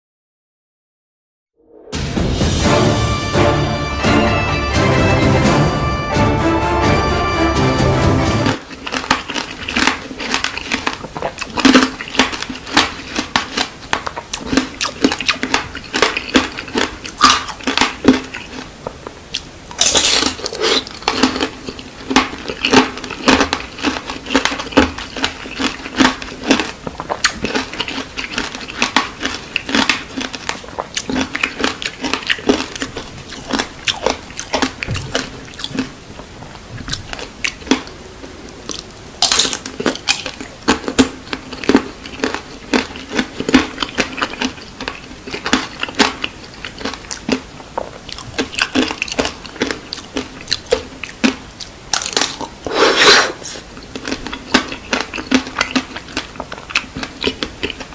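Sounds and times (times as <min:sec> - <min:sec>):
chewing candied fruit: 0:08.6 - 0:57.9
sugar coating crunching: 0:08.7 - 0:18.7.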